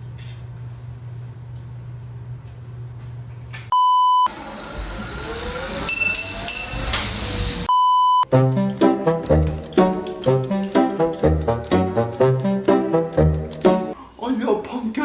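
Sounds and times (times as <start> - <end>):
short high beeps: 3.7 - 4.3, 7.7 - 8.2
test-tone beep: 3.7 - 4.3, 7.7 - 8.2
music with brass: 8.3 - 14.0.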